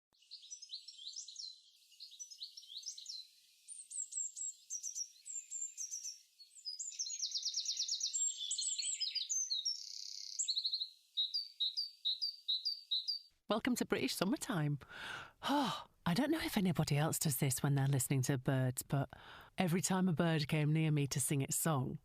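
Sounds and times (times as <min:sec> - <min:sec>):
fast bird trill: 0:00.3 - 0:13.2
songbirds whistling: 0:00.3 - 0:13.2.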